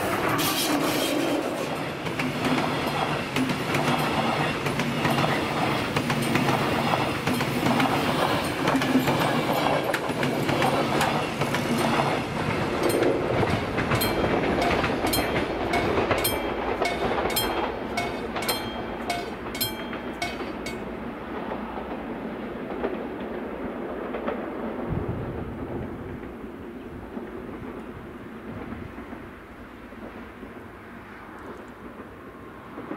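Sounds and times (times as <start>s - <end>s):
clickety-clack over rail joints: 0.0s - 24.9s
rumble of train wheels on rail: 0.0s - 32.9s.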